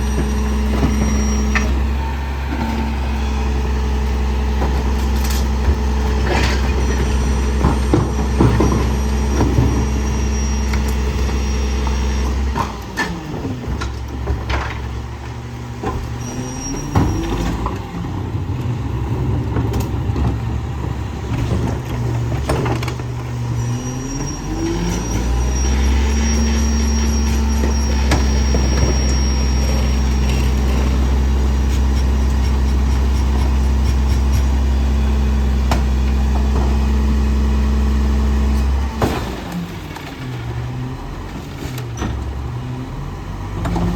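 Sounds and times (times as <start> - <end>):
diesel engine running: 0.0 - 43.9
trash knocks and clanks: 4.4 - 10.0, 11.0 - 23.5, 26.0 - 34.6, 35.5 - 37.3, 38.6 - 42.6.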